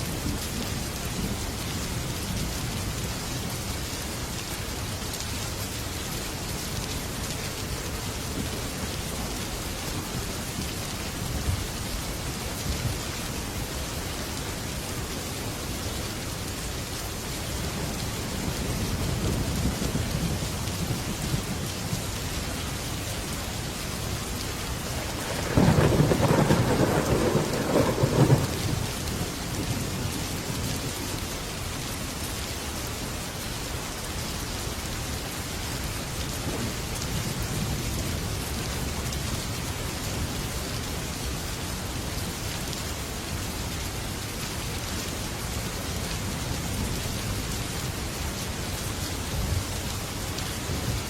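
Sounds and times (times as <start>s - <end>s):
heavy rain on a metal roof: 0.0s - 51.0s
thunder rumbling: 24.7s - 30.2s.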